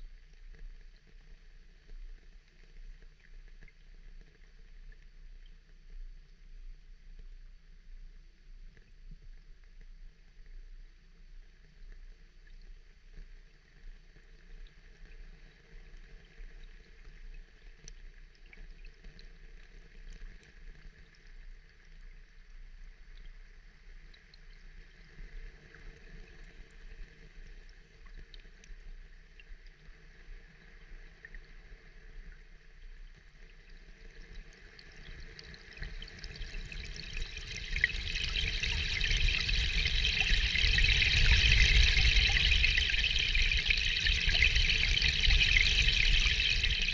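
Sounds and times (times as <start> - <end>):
water dripping: 35.1 - 46.9
water pouring: 35.4 - 46.9.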